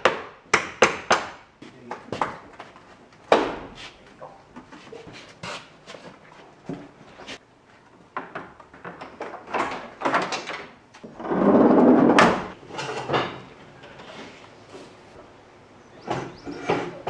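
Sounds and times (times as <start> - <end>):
scraping rumble: 11.1 - 13.1.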